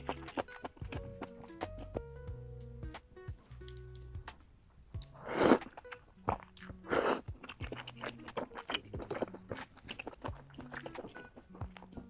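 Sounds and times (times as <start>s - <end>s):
person chewing food: 0.0s - 2.0s, 5.0s - 12.0s
loud bites or slurps: 5.1s - 5.7s, 6.7s - 7.3s.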